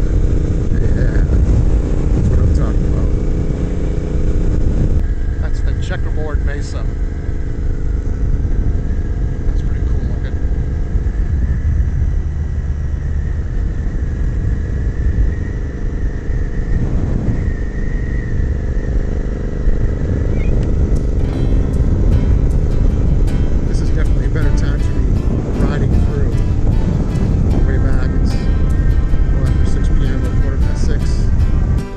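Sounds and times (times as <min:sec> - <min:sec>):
motorcycle engine running: 0:00.0 - 0:31.9
wind rumble on microphone: 0:00.0 - 0:31.9.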